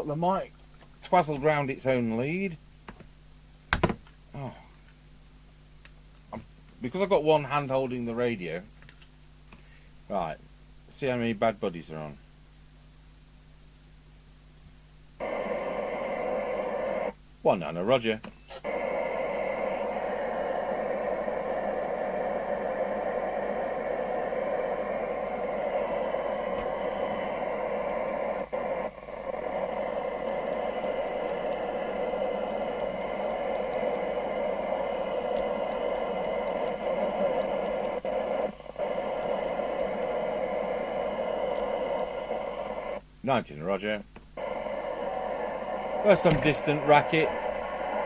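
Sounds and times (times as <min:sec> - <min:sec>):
weak distant radio signal: 0:09.8 - 0:48.0
radio receiver hissing: 0:15.2 - 0:43.1, 0:44.4 - 0:48.0.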